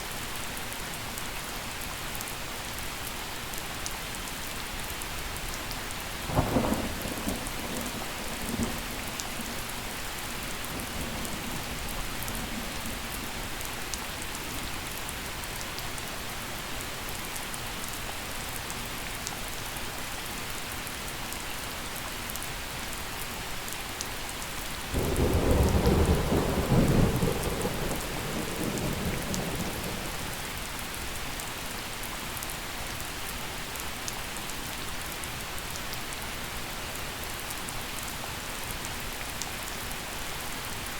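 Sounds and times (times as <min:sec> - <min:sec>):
gentle rain falling: 0:00.0 - 0:40.9
thunder rumbling: 0:25.0 - 0:30.4.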